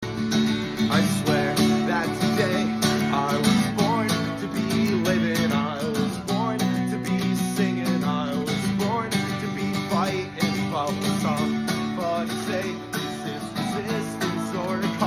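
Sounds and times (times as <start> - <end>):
acoustic guitar strumming: 0.0 - 15.0
wavering melody line: 10.8 - 15.0.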